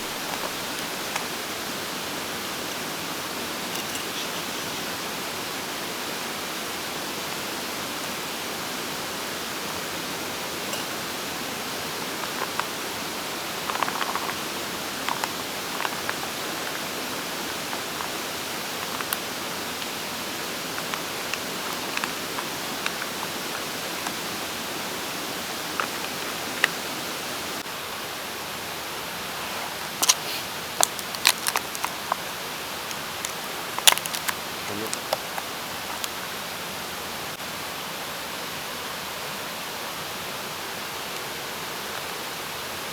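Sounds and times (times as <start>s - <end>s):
mountain stream rushing: 0.0s - 42.9s.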